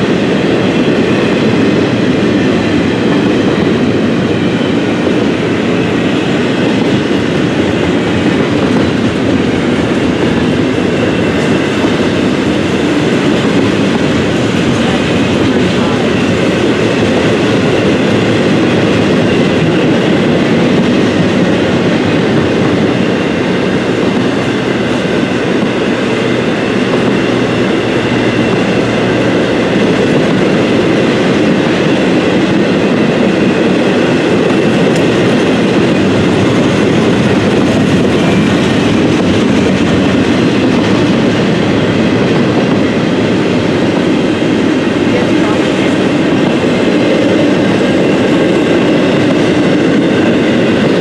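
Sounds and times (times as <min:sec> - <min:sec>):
freight train rolling past: 0:00.0 - 0:51.0.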